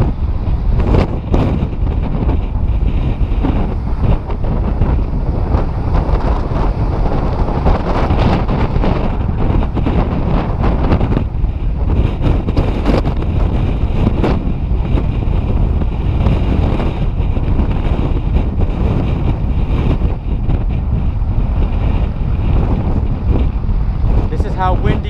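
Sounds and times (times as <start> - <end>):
strong wind buffeting microphone: 0.0 - 25.0.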